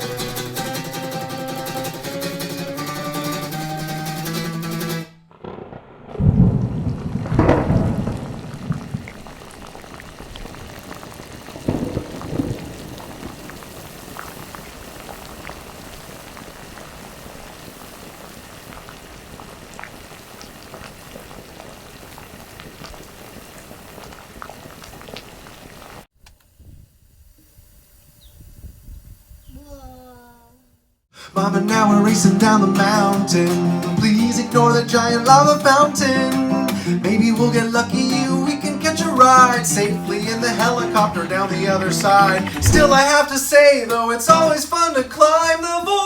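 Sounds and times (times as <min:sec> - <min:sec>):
crackling hiss: 0:00.0 - 0:46.0
deep rumbling booms: 0:05.4 - 0:10.0, 0:42.5 - 0:43.2.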